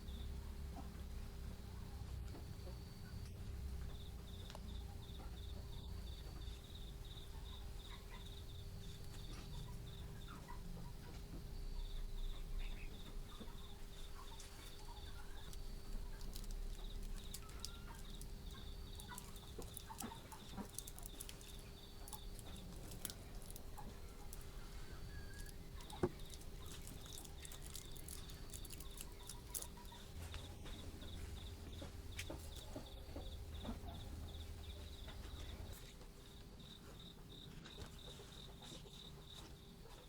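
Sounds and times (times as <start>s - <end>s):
steady low hum: 0.0s - 40.0s
insect chirping in pulses: 2.6s - 35.8s
chickens clucking: 4.0s - 36.0s.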